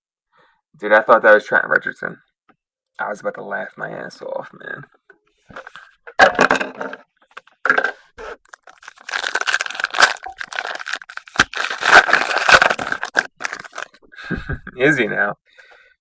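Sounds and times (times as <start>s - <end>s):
card pack wrapper tearing and crinkling: 8.3s - 14.0s.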